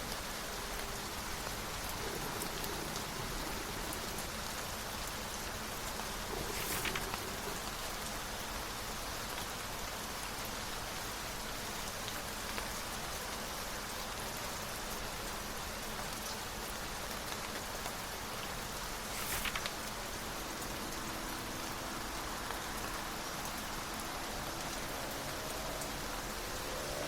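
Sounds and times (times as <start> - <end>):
steady rain: 0.0 - 27.0
page rustle: 6.3 - 7.6, 19.0 - 19.9.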